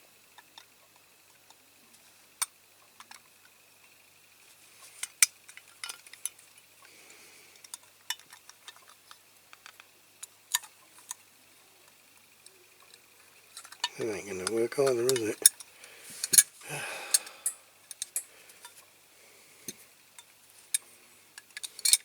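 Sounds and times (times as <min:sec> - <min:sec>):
faint high whine: 0:10.9 - 0:20.2.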